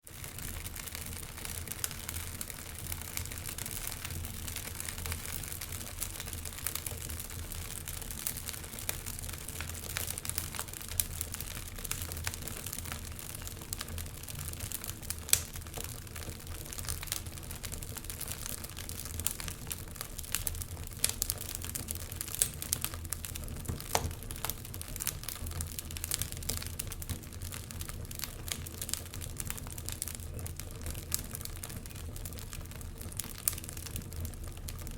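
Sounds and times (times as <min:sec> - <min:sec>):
wood fire crackling and popping: 0:00.0 - 0:34.9.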